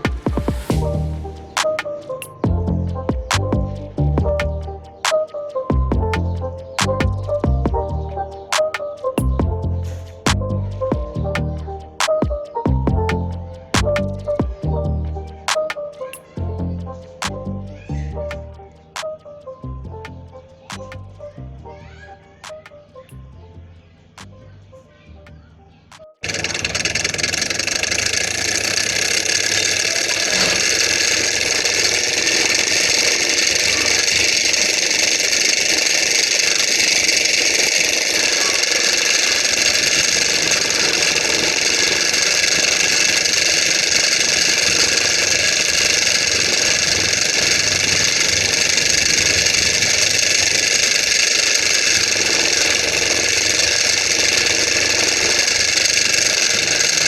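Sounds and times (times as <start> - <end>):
stirling engine running: 26.2 - 57.0.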